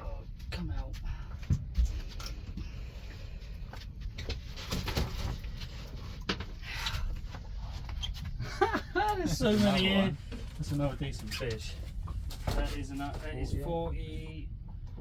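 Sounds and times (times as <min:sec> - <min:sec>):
steady low rumble: 0:05.4 - 0:15.0.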